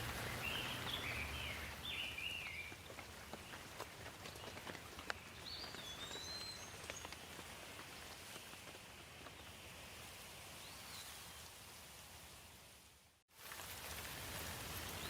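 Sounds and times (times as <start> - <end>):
light rain falling: 0.0 - 15.0
bird whistled calls: 0.2 - 2.7, 5.4 - 7.1.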